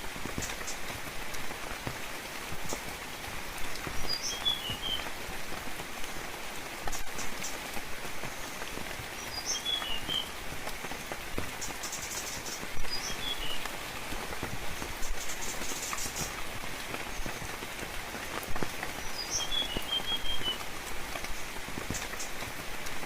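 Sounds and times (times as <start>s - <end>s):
gentle rain pattering: 0.0s - 23.0s
bird chirping: 11.6s - 13.6s, 19.0s - 20.6s.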